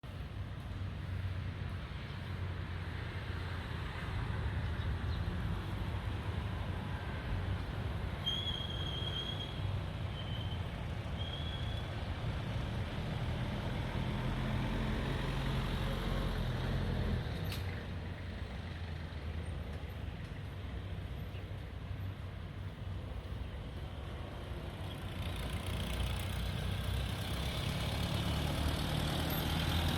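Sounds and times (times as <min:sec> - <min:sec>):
street traffic rumble: 0:00.0 - 0:29.9
short high squeaks: 0:08.2 - 0:11.9.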